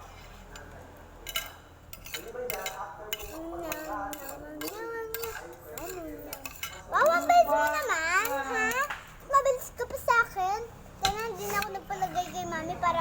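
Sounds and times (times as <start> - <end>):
spoon clinking on a plate: 0.5 - 8.9.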